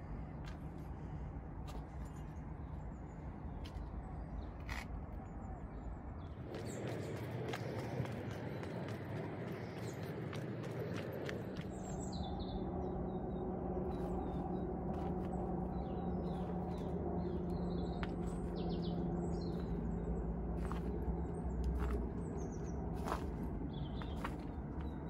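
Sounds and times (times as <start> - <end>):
small birds chirping: 0.4 - 25.0
low drone: 5.9 - 25.0.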